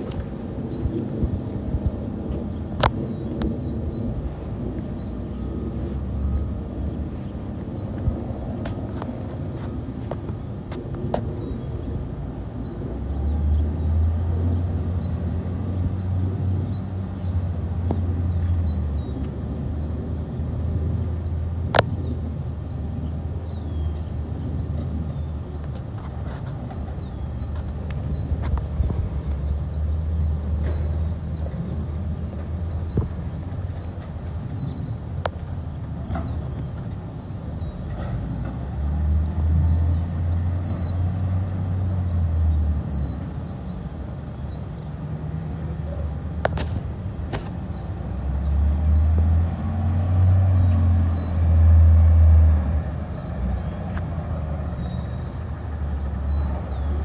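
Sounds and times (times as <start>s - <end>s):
birds chirping: 0.0s - 57.0s
diesel engine humming: 0.0s - 57.0s
faint bird chirps: 53.6s - 57.0s.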